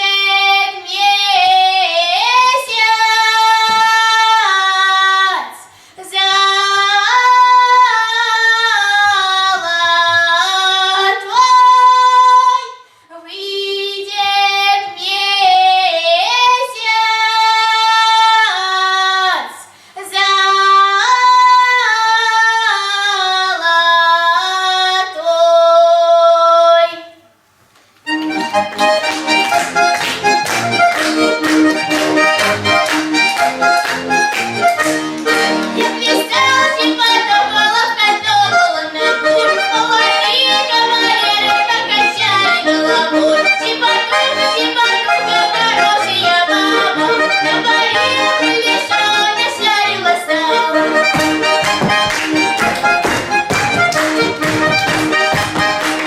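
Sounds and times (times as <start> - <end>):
accordion playing quick passages: 28.0 - 56.0.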